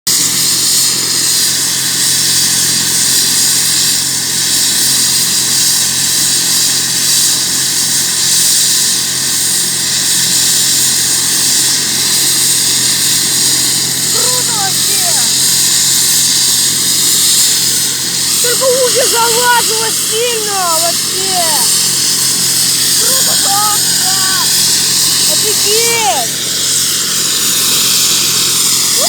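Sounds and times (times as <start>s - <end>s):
helicopter turbine and rotor: 0.1s - 29.0s.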